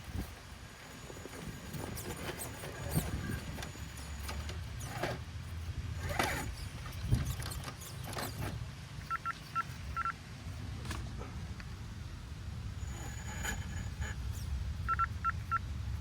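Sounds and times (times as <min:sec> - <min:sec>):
knocks and scrapes on ground: 0:00.1 - 0:08.7, 0:12.8 - 0:14.6
toy car motor humming: 0:00.1 - 0:10.1, 0:12.8 - 0:15.6
short electronic beeps: 0:09.0 - 0:10.2, 0:14.8 - 0:15.7.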